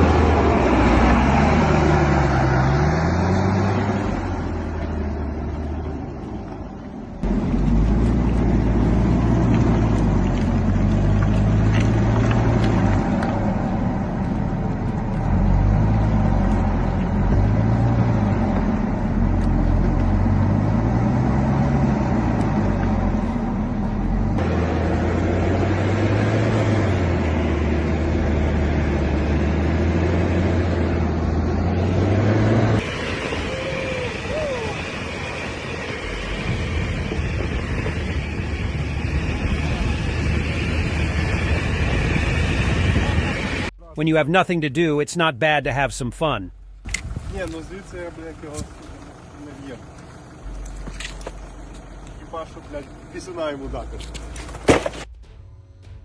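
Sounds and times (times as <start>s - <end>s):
heavy vehicle engine revving: 0.0s - 43.8s.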